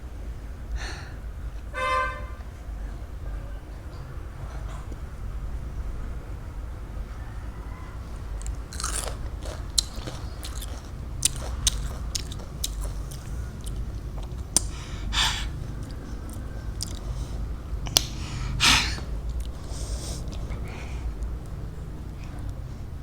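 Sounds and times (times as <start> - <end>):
crunching raw fruit: 8.3 - 14.8, 15.8 - 17.2.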